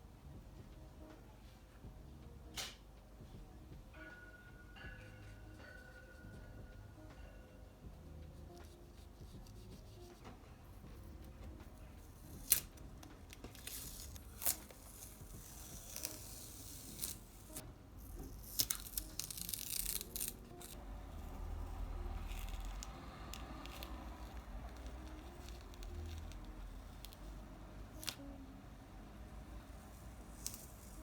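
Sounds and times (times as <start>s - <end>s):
paper tearing and crinkling: 13.3s - 20.8s, 30.3s - 31.0s.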